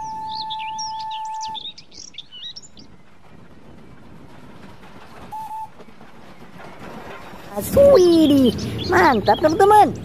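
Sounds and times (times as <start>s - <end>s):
steady whistle tone: 0.0s - 2.6s, 5.3s - 6.0s
birds chirping: 0.0s - 10.0s
outdoor background: 0.0s - 10.0s.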